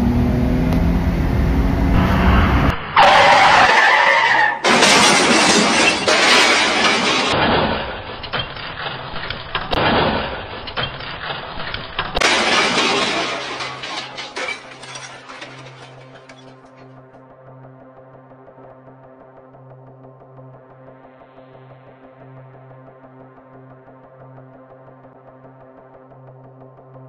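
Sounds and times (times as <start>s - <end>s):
vehicle noise: 0.0s - 16.9s
crashing: 3.0s - 16.7s
glass breaking: 3.0s - 16.7s.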